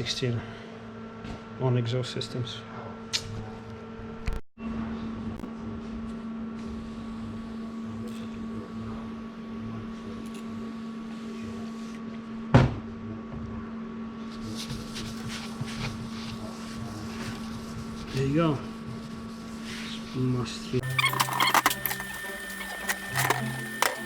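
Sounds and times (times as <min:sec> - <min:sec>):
steady machine hum: 0:20.8 - 0:24.0.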